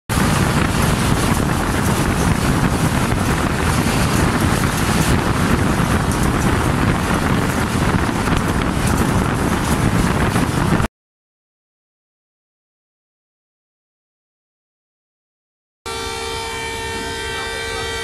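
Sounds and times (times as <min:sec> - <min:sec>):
train rumbling on track: 0:00.1 - 0:10.9, 0:15.9 - 0:18.0
wind buffeting microphone: 0:00.1 - 0:10.9.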